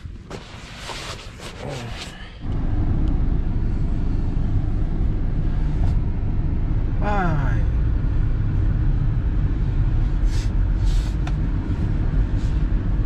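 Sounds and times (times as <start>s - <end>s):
car engine running: 2.4s - 13.0s.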